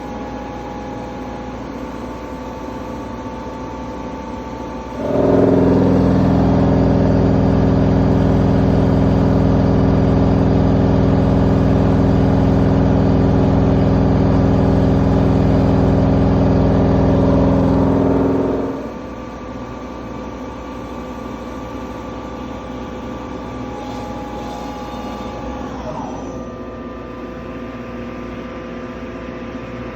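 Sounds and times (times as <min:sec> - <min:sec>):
machine motor loud hum: 0:00.0 - 0:29.9.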